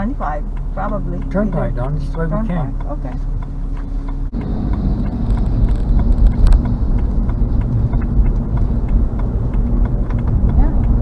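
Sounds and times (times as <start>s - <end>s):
car tyres and engine rumble: 0.0s - 11.0s.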